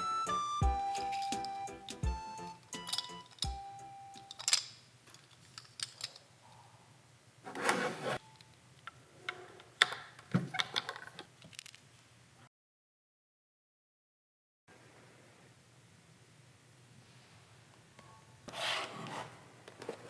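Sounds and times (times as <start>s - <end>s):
rubbing or rustling: 7.5s - 8.2s.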